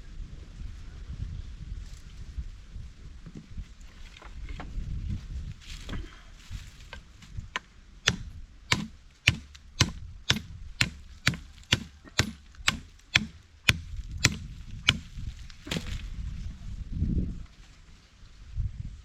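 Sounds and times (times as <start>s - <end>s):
blade chopping wood: 6.9s - 16.1s.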